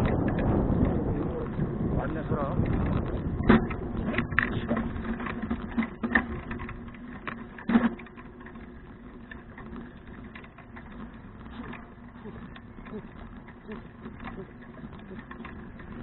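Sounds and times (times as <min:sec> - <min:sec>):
bicycle knocks: 0:00.0 - 0:16.0
bicycle ticking and rattling: 0:00.0 - 0:16.0.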